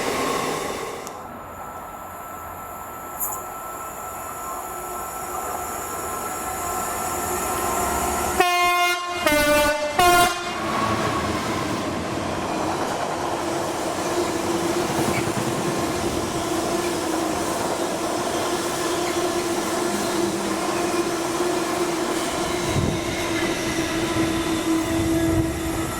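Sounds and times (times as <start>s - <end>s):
train running with hum: 0.0s - 25.9s
train horn blasts: 8.4s - 10.8s, 24.0s - 25.9s.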